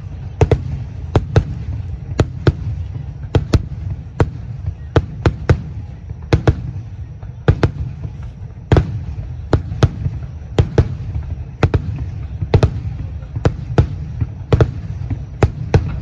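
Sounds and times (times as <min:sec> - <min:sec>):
firework shells bursting: 0:07.7 - 0:10.0.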